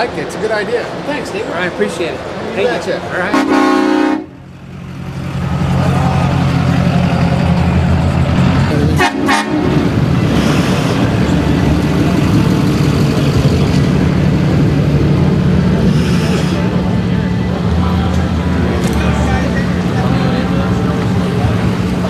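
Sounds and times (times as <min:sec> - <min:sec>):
horn toot: 0:03.2 - 0:04.4, 0:08.7 - 0:12.4
vehicle engine running: 0:04.3 - 0:22.0.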